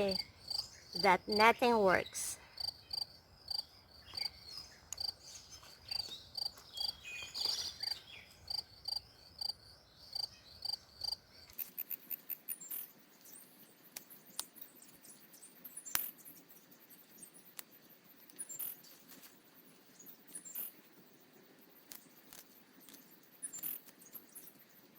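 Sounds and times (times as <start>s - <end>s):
cricket chirping: 0.0s - 1.4s, 2.4s - 5.2s, 5.9s - 12.9s.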